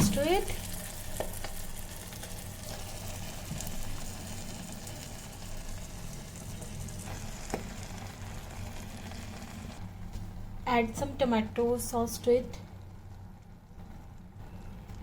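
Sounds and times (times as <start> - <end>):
food sizzling: 0.0 - 9.8.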